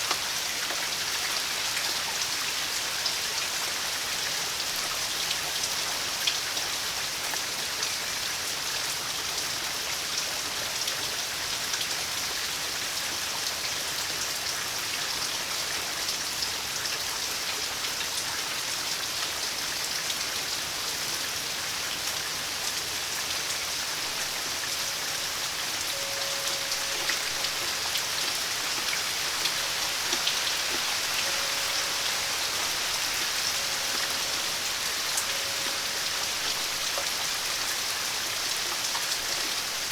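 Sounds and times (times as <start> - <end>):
steady rain falling: 0.0 - 39.9
faint steady tone: 23.4 - 39.8.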